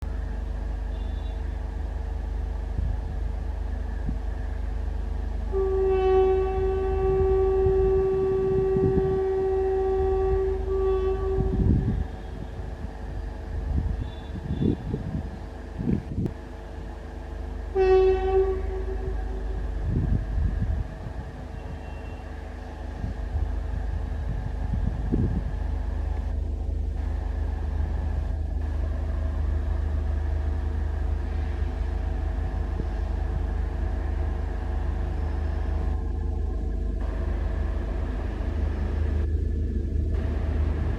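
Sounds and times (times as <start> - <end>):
electric train running: 0.0 - 40.9
low rumble: 0.0 - 40.9
electric locomotive horn blasts: 0.8 - 1.8, 3.9 - 15.4, 16.8 - 26.3, 27.0 - 39.3.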